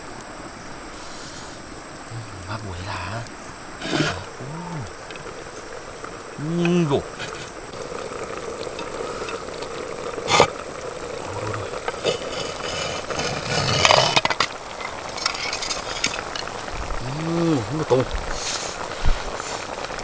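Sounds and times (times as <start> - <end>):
food sizzling in a pan: 0.0 - 20.0
utensil scraping cookware: 3.8 - 4.3, 11.8 - 16.6.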